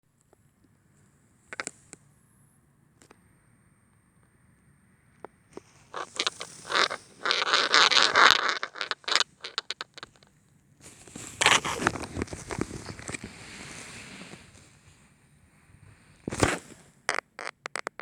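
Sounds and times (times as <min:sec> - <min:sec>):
rustling and scraping handling noise: 0:05.6 - 0:17.5.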